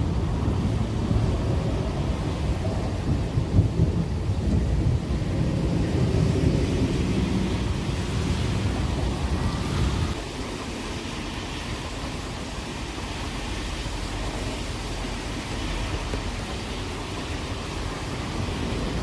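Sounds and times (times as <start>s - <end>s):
rain hissing: 0.0s - 19.0s
rolling thunder rumbling: 0.0s - 19.0s.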